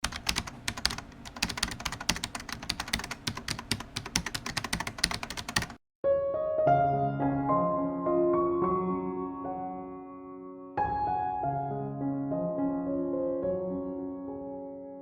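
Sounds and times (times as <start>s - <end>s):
rapid irregular clicks: 0.0s - 5.8s
soft piano music: 6.0s - 15.0s.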